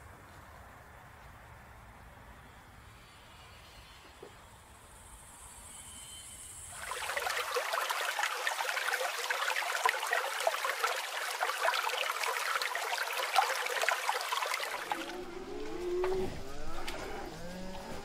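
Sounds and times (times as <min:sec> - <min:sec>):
water trickling and splashing: 0:06.7 - 0:18.0.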